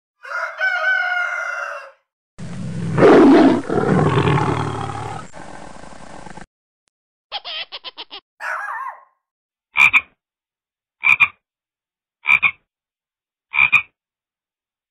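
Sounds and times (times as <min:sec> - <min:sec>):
parrot calling and squawking: 0:07.3 - 0:09.1.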